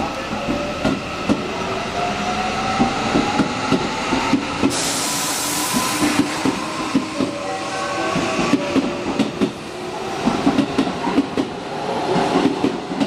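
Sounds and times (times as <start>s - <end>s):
hiss burst: 4.6s - 6.6s
train wheels clacking on rail joints: 10.2s - 13.0s.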